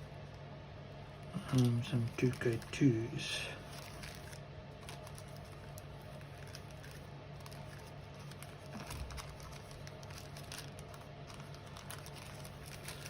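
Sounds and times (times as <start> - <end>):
steady low hum: 0.0 - 13.0
small parts clicking and rustling: 3.7 - 13.0.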